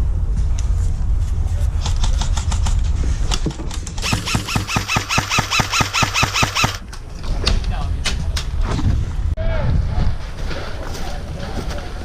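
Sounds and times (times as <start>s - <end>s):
wind rumble on microphone: 0.0s - 4.1s, 6.8s - 12.0s
airsoft gun firing: 4.0s - 6.8s.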